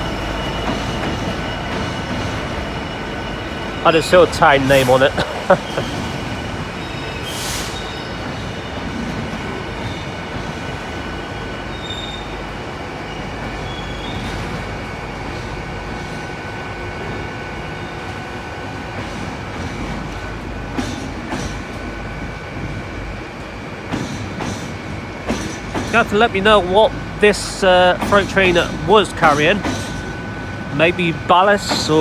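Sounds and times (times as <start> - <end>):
high wheel squeal: 0.0 - 15.6, 25.3 - 32.0
freight train rumble: 0.0 - 32.0.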